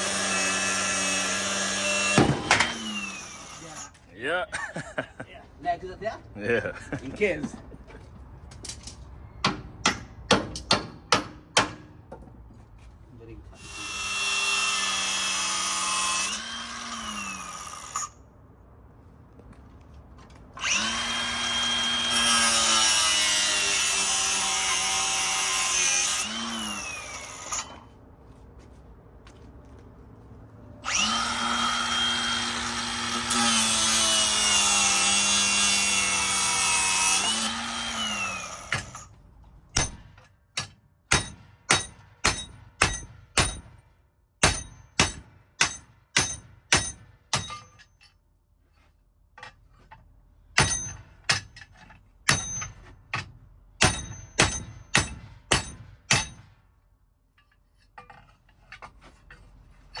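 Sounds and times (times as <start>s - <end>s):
hammer striking metal: 9.4s - 12.0s, 39.8s - 43.8s, 44.4s - 48.0s, 50.6s - 51.6s, 52.3s - 56.6s
electric power tool running: 30.8s - 38.7s.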